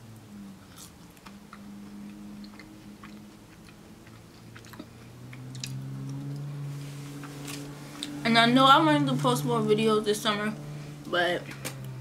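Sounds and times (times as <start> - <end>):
steady low hum: 0.0 - 12.0
person chewing: 0.6 - 6.5, 7.2 - 8.2.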